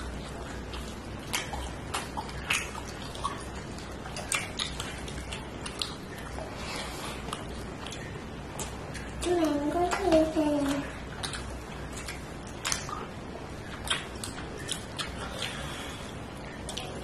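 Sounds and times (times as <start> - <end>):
mouth smacking and chewing: 0.0 - 17.0
high voice: 9.2 - 10.9.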